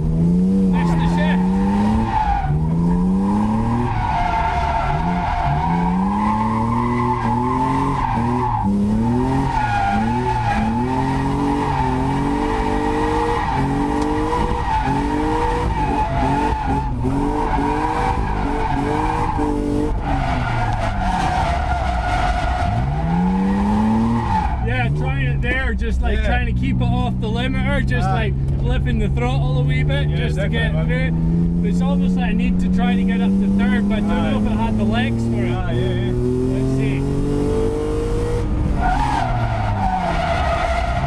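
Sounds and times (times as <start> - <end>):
car engine revving: 0.0 - 41.0
tyres squealing: 0.8 - 25.4.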